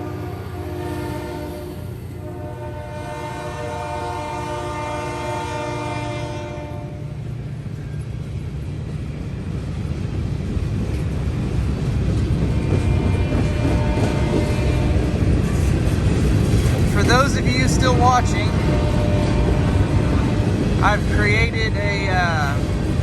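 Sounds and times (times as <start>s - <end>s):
locomotive air horn blast: 0.0s - 7.0s, 12.9s - 15.1s, 17.1s - 20.5s
diesel locomotive engines rumbling: 0.0s - 23.0s.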